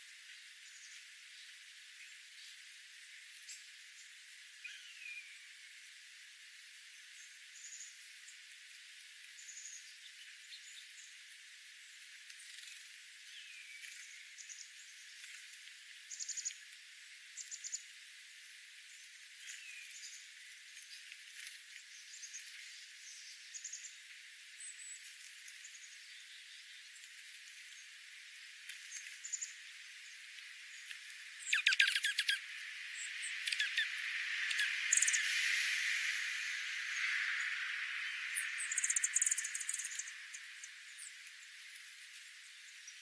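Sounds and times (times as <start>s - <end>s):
steady hiss: 0.0s - 43.0s
birds chirping and trilling: 28.9s - 43.0s.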